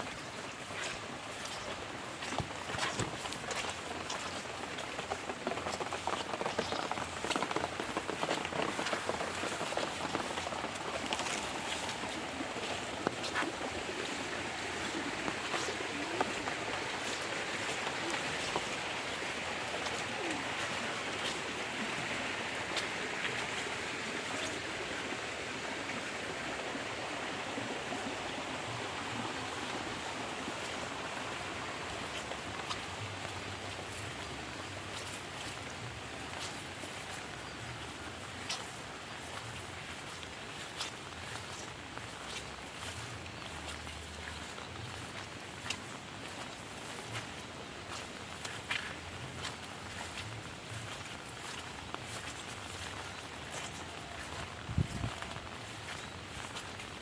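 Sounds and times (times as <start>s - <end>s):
heavy rain falling: 2.4s - 24.8s, 39.3s - 57.0s.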